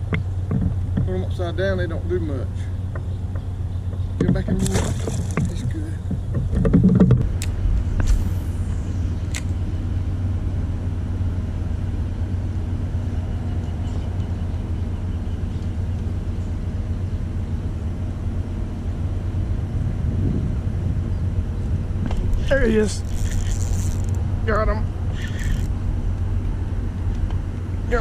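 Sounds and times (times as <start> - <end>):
wind buffeting microphone: 0.0 - 11.1, 19.0 - 28.0.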